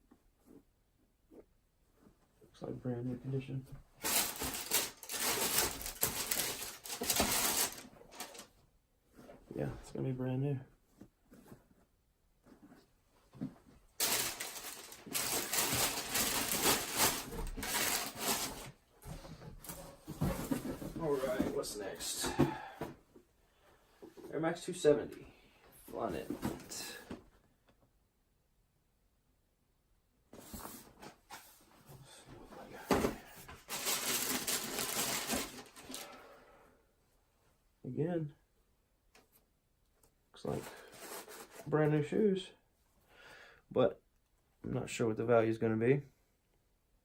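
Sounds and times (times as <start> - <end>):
packaging rustling and crinkling: 4.0 - 8.5, 14.0 - 18.8, 32.8 - 36.2.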